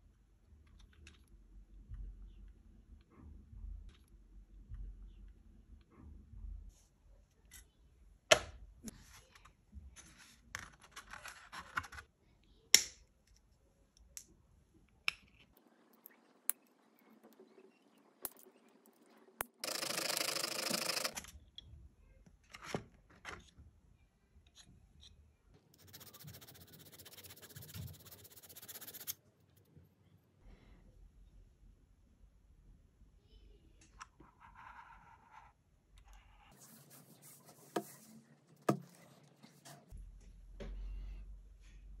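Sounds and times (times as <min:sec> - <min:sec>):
scratchy rasping noise: 0:25.8 - 0:29.2.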